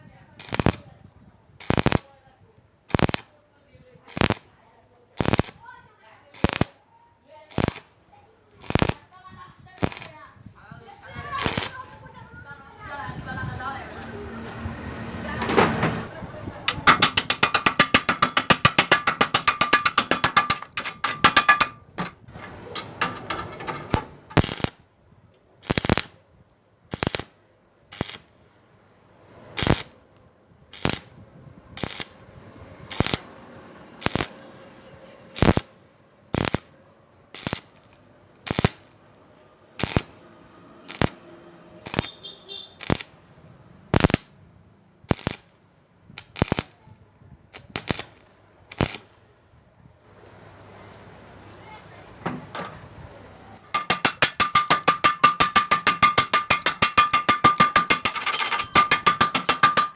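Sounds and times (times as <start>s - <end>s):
welding arc crackling: 0.4s - 1.0s, 1.6s - 2.1s, 2.9s - 3.3s, 4.0s - 4.6s, 5.2s - 6.8s, 7.4s - 9.2s, 9.8s - 10.2s, 11.3s - 12.0s, 16.7s - 21.7s, 22.8s - 24.8s, 25.6s - 26.2s, 26.9s - 28.3s, 29.5s - 30.0s, 30.7s - 31.2s, 31.8s - 33.3s, 34.0s - 34.4s, 35.4s - 35.7s, 36.3s - 36.7s, 37.3s - 39.0s, 39.8s - 40.2s, 40.8s - 41.2s, 41.8s - 44.4s, 45.0s - 45.6s, 46.2s - 46.8s, 47.5s - 49.2s.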